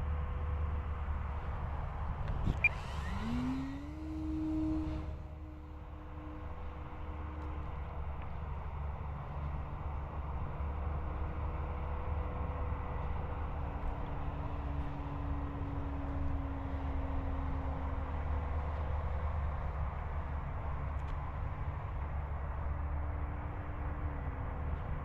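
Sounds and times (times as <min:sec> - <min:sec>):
wind rumble on microphone: 0:00.0 - 0:25.0
model airplane motor whining: 0:02.5 - 0:05.9.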